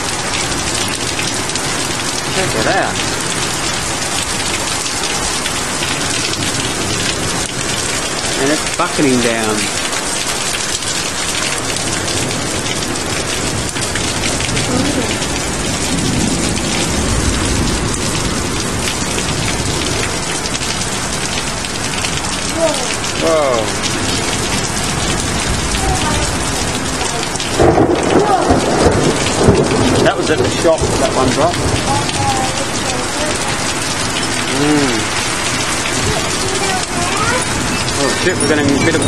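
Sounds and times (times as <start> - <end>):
heavy rain pouring: 0.0 - 39.0
thunder rumbling: 10.8 - 39.0.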